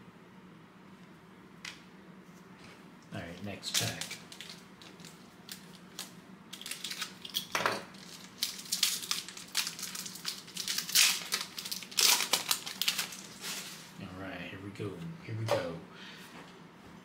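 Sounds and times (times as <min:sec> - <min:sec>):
wrapper tearing and crinkling: 0:03.3 - 0:14.0.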